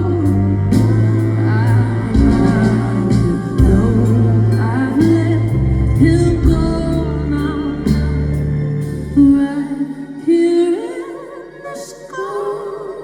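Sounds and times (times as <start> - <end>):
band playing: 0.0 - 9.9
woman singing: 0.0 - 13.0.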